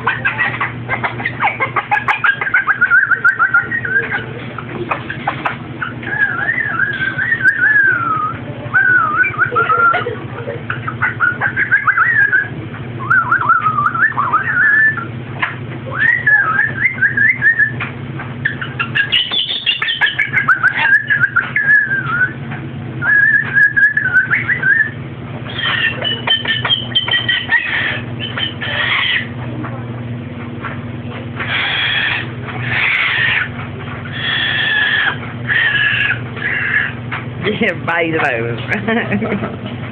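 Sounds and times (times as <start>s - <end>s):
parrot calls: 0.0s - 15.1s, 15.9s - 17.8s, 18.4s - 22.4s, 23.0s - 29.4s, 31.4s - 37.1s
parrot whistling: 2.1s - 4.3s, 5.8s - 10.1s, 10.8s - 15.1s, 15.9s - 17.8s, 18.5s - 22.4s, 23.0s - 29.3s, 31.5s - 33.5s, 34.1s - 36.9s.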